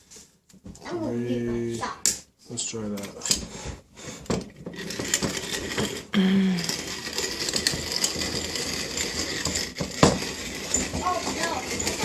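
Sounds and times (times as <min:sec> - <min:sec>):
manual coffee grinder grinding: 0:04.5 - 0:12.0.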